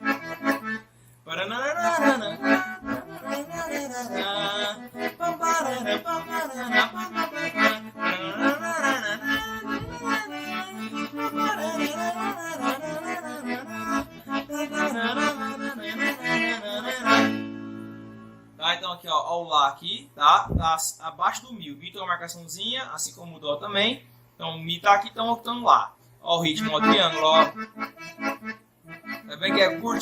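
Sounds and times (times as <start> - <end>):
accordion playing fast tune: 0.0 - 18.6, 26.4 - 30.0.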